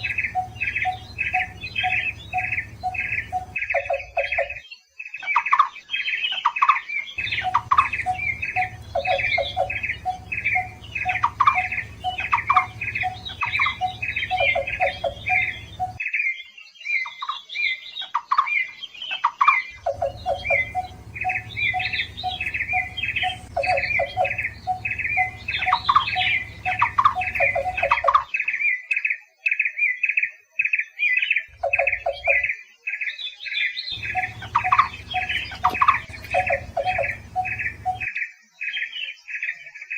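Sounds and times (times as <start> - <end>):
low hum: 0.0 - 4.6, 7.2 - 16.0, 19.8 - 28.1, 34.0 - 38.1
rhythmic hooting bird notes: 0.0 - 4.6, 7.2 - 16.0, 19.8 - 28.3, 31.5 - 32.5, 33.9 - 38.1
birds calling repeated short notes: 0.0 - 4.7, 7.1 - 16.0, 19.7 - 28.4, 31.5 - 32.5, 33.9 - 38.1.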